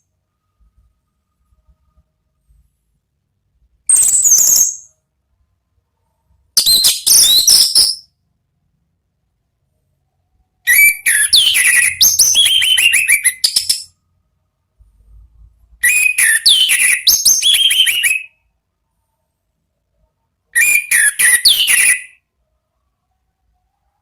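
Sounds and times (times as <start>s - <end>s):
thrush singing whistled notes: 10.7s - 13.9s, 15.8s - 18.4s, 20.6s - 22.2s.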